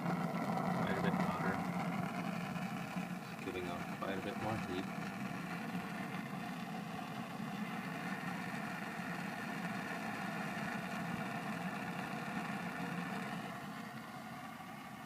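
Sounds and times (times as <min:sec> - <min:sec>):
computer fan humming: 0:00.0 - 0:15.0.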